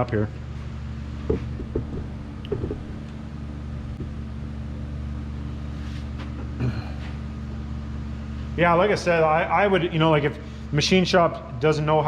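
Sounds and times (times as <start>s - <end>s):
low machine hum: 0.0s - 12.0s
parts knocking: 1.3s - 3.2s, 3.8s - 4.3s.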